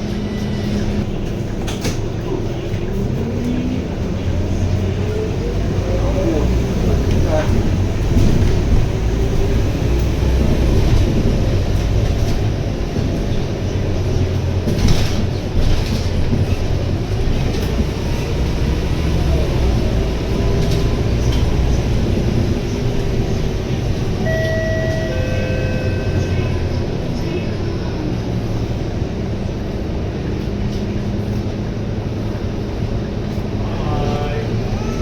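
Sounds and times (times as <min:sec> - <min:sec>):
bus engine rumble: 0:00.0 - 0:35.0
steady tone: 0:24.2 - 0:26.7.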